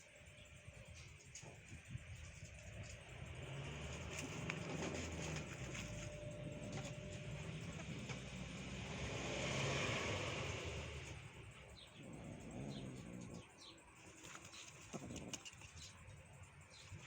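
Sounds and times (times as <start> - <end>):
vehicle passing by: 2.9 - 13.6.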